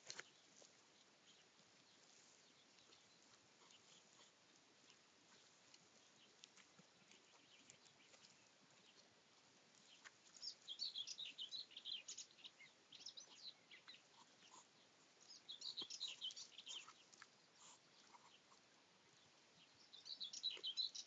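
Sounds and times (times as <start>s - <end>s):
faint songbird twittering: 9.8s - 21.0s.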